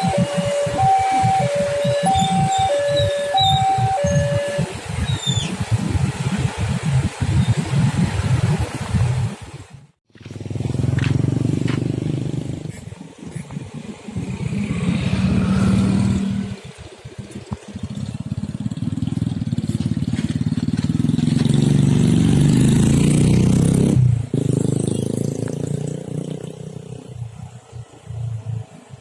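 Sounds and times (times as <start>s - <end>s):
traffic passing close by: 10.1s - 29.0s.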